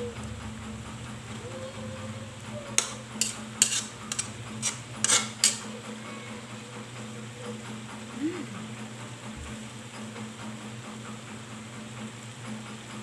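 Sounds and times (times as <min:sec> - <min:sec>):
utensil clinking against dishes: 0:02.7 - 0:05.7.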